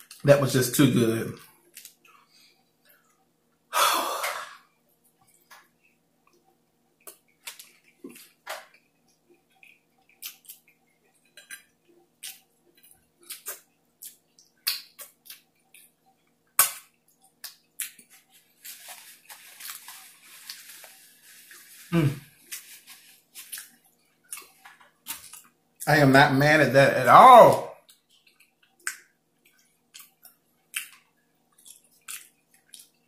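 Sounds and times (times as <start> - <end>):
loud breath: 3.7 - 4.6
wet chewing and lip smacks: 5.1 - 19.0, 23.3 - 25.6, 27.8 - 33.0.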